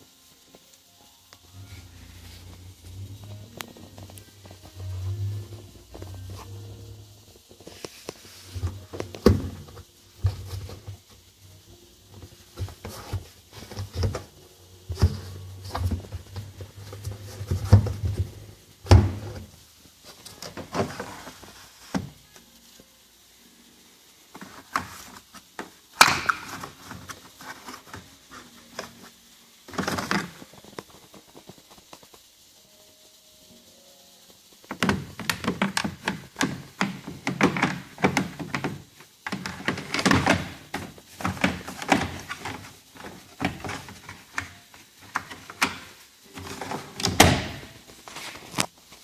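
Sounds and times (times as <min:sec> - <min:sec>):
low steady hum: 0:00.1 - 0:21.0.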